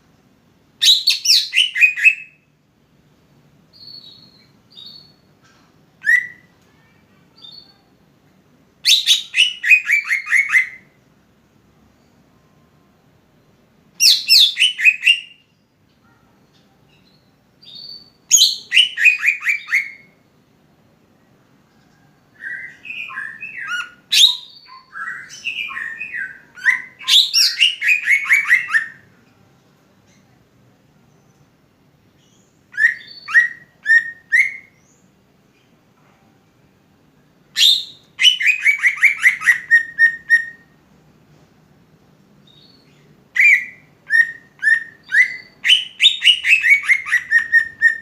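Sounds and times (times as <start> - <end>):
bird singing whistled notes: 0.8 - 2.4, 3.7 - 5.3, 6.0 - 6.5, 8.8 - 11.0, 14.0 - 15.6, 17.0 - 20.1, 22.4 - 29.1, 32.2 - 35.0, 37.6 - 40.8, 42.4 - 48.0.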